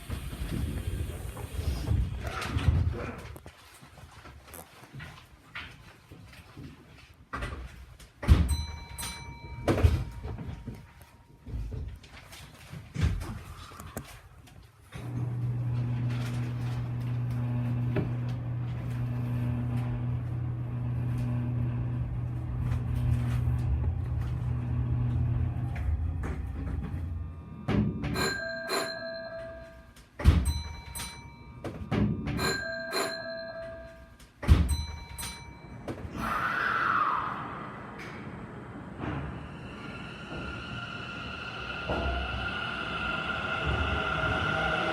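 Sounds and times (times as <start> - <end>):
electric signal bell ringing: 8.5 - 11.4, 28.1 - 36.0.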